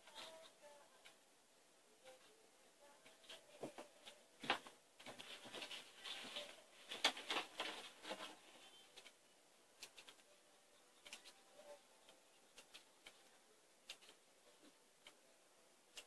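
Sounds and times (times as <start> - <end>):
soft rustling and scratching: 3.0 - 9.2.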